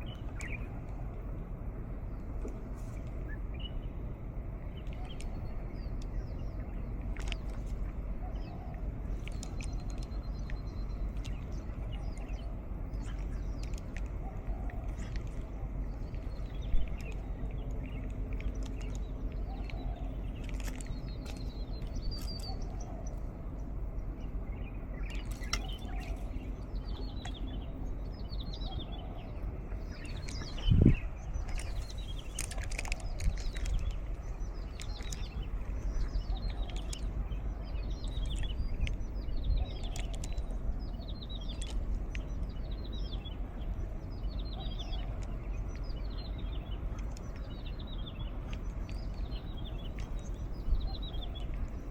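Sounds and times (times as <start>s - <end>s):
breeze rumble: 0.0s - 51.9s
wild birds singing: 0.0s - 51.9s.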